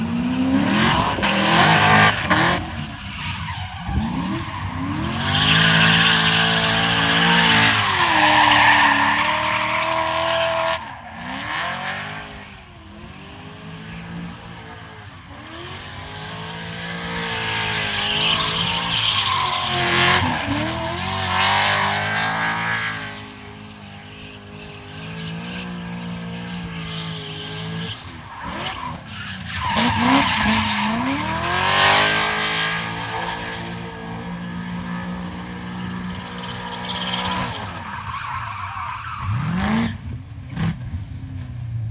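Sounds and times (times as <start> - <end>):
car engine revving hard: 0.1 - 3.0, 3.9 - 12.4, 15.3 - 23.6, 25.0 - 34.4, 39.1 - 41.4.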